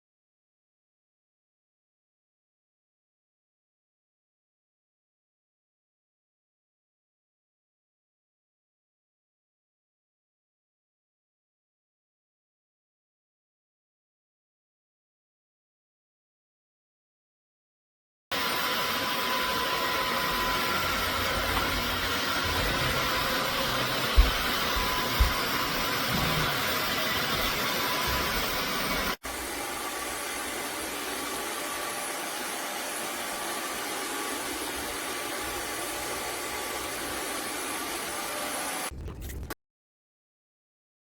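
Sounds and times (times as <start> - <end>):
vacuum mop motor whooshing: 18.4 - 39.0.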